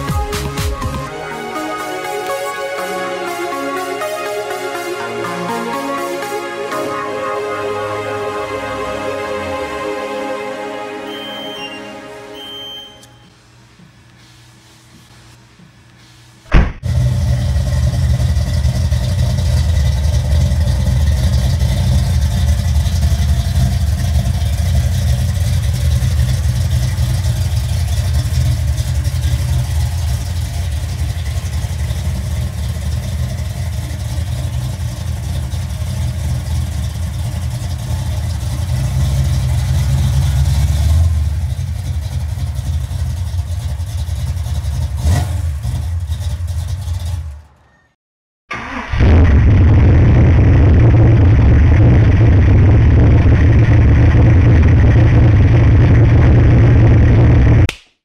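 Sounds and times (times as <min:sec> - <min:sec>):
car engine idling: 0:16.5 - 0:47.6.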